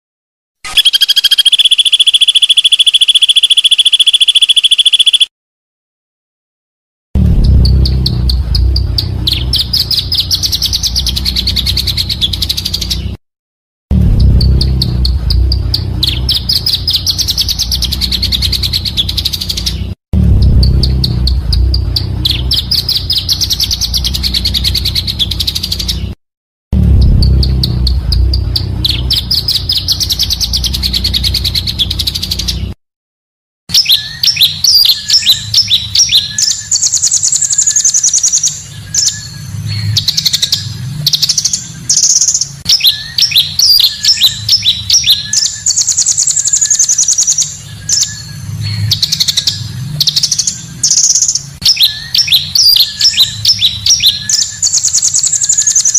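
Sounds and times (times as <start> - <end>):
bird trilling chirps: 0.7 - 5.3, 7.4 - 13.2, 14.2 - 26.2, 26.8 - 32.8, 33.7 - 55.9
bird twittering: 0.7 - 5.3, 7.4 - 13.1, 14.2 - 19.9, 20.6 - 26.2, 27.0 - 32.7, 33.7 - 55.9
low hum: 7.2 - 12.4, 13.9 - 25.7, 26.7 - 32.8.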